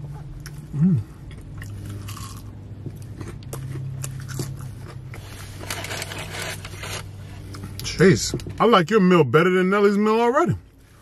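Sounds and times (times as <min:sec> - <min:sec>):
crunchy chewing: 0:00.1 - 0:07.9.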